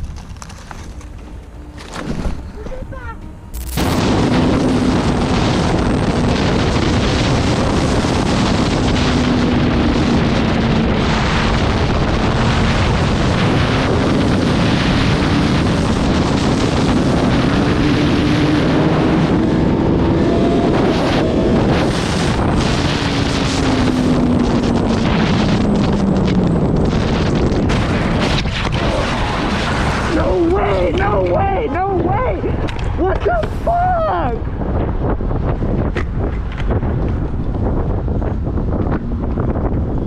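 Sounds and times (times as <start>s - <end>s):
wind rushing over microphone: 0.0s - 40.0s
motorcycle engine revving: 3.4s - 29.8s.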